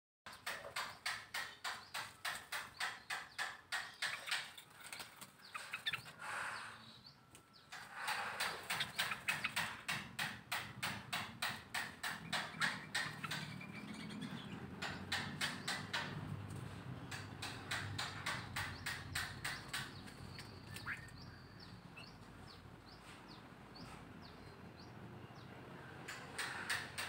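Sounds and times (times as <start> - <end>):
bird calling with clicking chips: 0.3 - 10.4, 11.1 - 16.1, 17.1 - 22.6.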